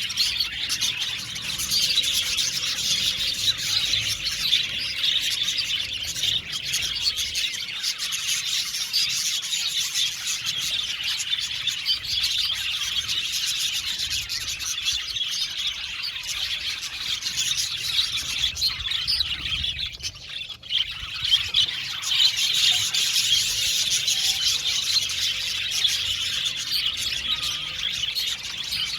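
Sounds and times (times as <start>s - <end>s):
budgerigars chattering: 0.0s - 28.9s.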